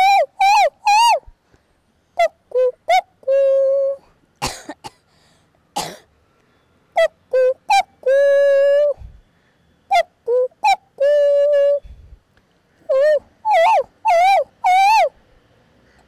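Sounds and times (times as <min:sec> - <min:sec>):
woman imitating bird call: 0:00.0 - 0:01.3, 0:02.2 - 0:04.0, 0:07.0 - 0:09.0, 0:09.9 - 0:12.0, 0:12.9 - 0:15.1
woman coughing: 0:04.4 - 0:05.0, 0:05.8 - 0:06.1.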